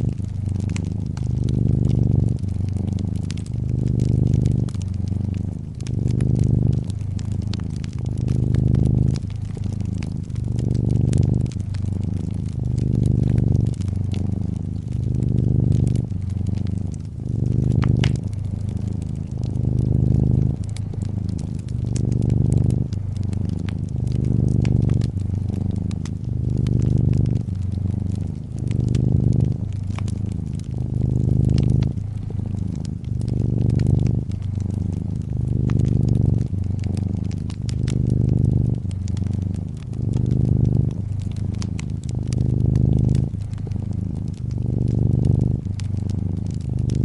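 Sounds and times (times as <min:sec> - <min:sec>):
cat purring: 0:00.0 - 0:47.0
fireplace crackling and popping: 0:00.0 - 0:47.0.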